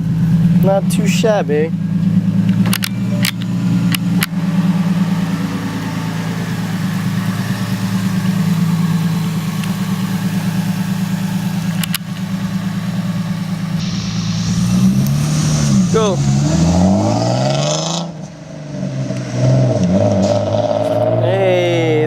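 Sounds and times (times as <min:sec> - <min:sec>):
car engine idling: 0:00.0 - 0:22.0
sharp clicks: 0:02.4 - 0:04.4, 0:11.7 - 0:12.3.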